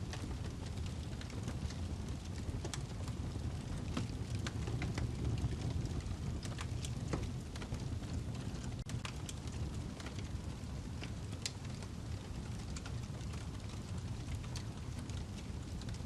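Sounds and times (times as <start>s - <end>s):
fire crackling and popping: 0.0s - 16.0s
fire rumbling: 0.0s - 16.0s.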